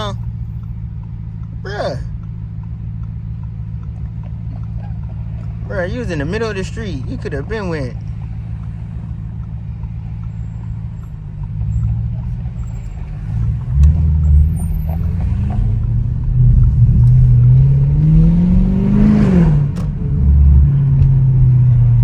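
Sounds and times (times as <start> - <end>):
car exhaust rumbling and revving: 0.0 - 22.0
exhaust pop: 0.0 - 22.0.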